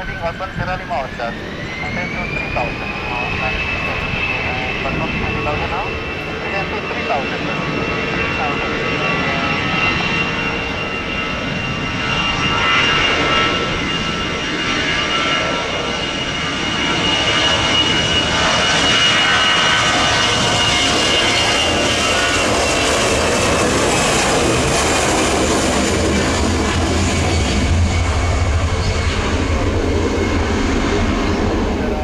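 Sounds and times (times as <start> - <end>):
jet engine rush: 0.0 - 32.0
jet engine whine: 0.0 - 32.0.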